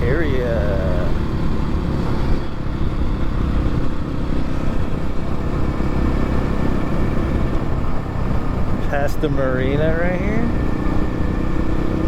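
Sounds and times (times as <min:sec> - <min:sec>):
wind noise on microphone: 0:01.8 - 0:09.0.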